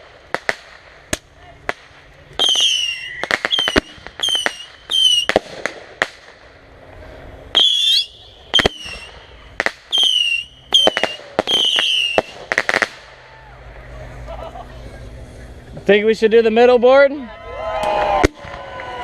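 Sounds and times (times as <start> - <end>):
whistling firework shots: 0.0 - 6.6, 7.5 - 13.6
firework pops and cracks: 0.0 - 6.7, 7.5 - 13.2, 17.8 - 18.6.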